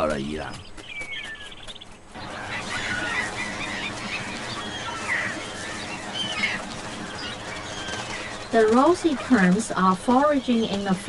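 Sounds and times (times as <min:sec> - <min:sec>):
geese honking: 0:01.0 - 0:11.0.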